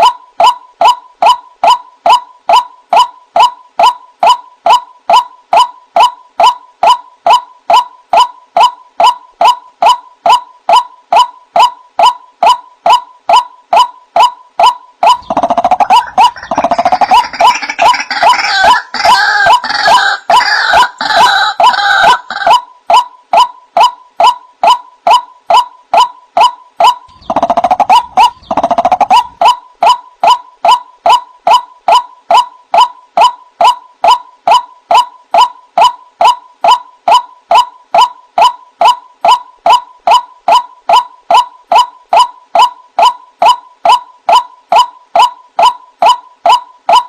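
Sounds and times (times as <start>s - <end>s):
waterhen calling kwak: 8.6s - 22.7s, 26.0s - 32.5s.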